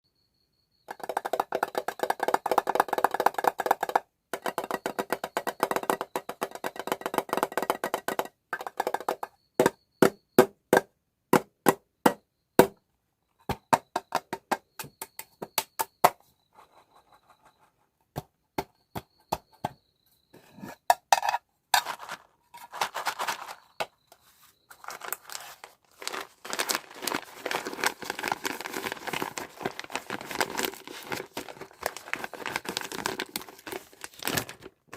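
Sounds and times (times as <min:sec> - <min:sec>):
packaging crinkling: 0:21.8 - 0:23.8, 0:24.7 - 0:34.9.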